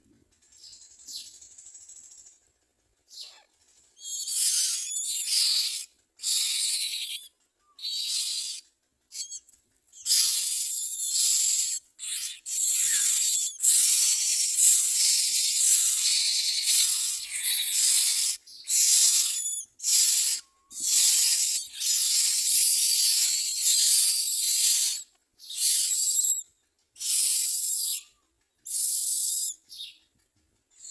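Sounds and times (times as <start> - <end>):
nestlings hissing begging calls: 4.0 - 9.4, 10.0 - 26.4, 27.0 - 28.1, 28.7 - 29.6.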